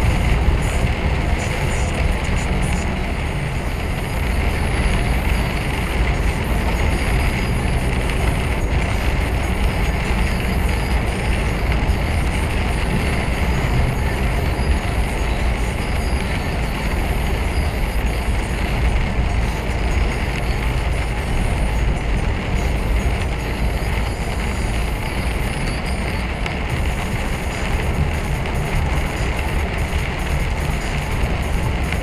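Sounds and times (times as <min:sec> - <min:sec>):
lorry engine rumble: 0:00.0 - 0:32.0
road noise rushing: 0:00.0 - 0:32.0.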